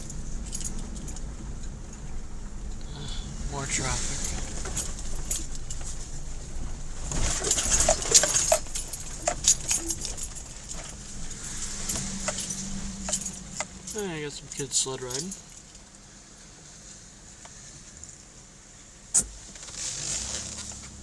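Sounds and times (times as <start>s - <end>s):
jingling clicks and rattles: 0.0s - 2.1s, 3.8s - 15.9s
low road rumble: 0.0s - 21.0s.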